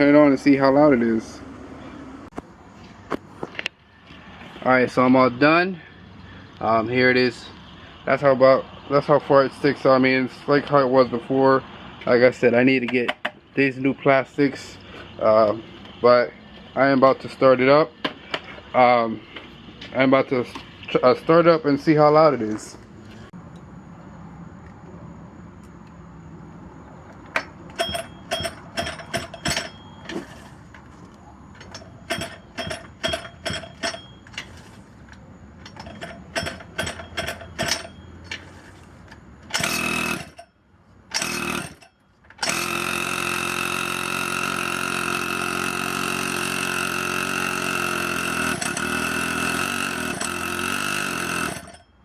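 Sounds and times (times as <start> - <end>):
recoil starter yanked: 12.0 - 13.6, 27.1 - 51.9
small two-stroke engine running: 27.7 - 35.1, 35.7 - 40.5, 41.1 - 52.0.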